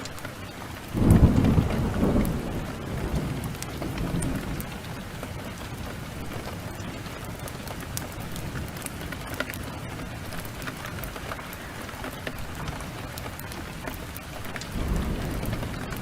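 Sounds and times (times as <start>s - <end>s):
heavy rain: 0.0s - 16.0s
wood fire crackling: 0.0s - 16.0s
low thunder rumble: 0.8s - 9.1s, 14.4s - 16.0s.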